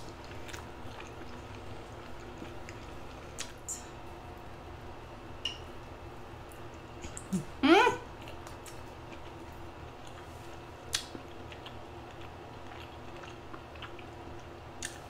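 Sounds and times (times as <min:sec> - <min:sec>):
steady low hum: 0:00.0 - 0:15.0
wet chewing clicks: 0:10.9 - 0:15.0.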